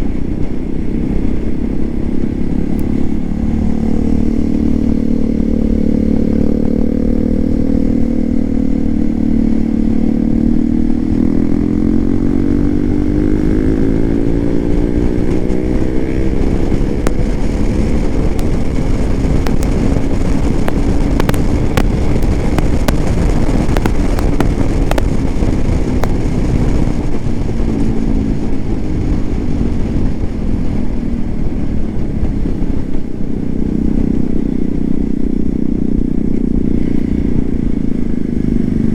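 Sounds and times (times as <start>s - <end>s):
motorcycle engine revving: 0.0s - 38.9s
sharp clicks and rattles: 16.5s - 28.1s.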